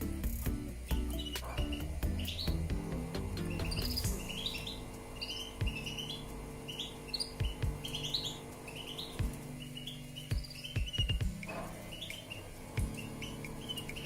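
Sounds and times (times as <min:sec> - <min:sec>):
dull low thumps: 0:00.0 - 0:04.4, 0:07.4 - 0:08.0, 0:10.3 - 0:11.5
steady low hum: 0:00.0 - 0:14.0
canary chirping: 0:00.7 - 0:14.0.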